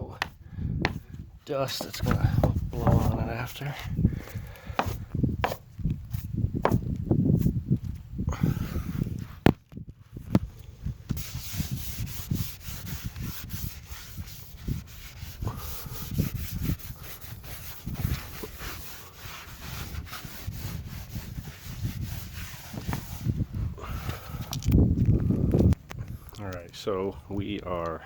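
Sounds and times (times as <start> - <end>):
rag rubbing on fiberglass: 1.6 - 7.6, 11.1 - 23.4.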